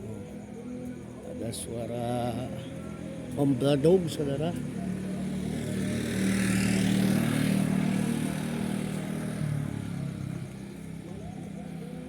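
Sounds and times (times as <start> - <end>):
vehicle engine passing by: 4.2 - 12.0.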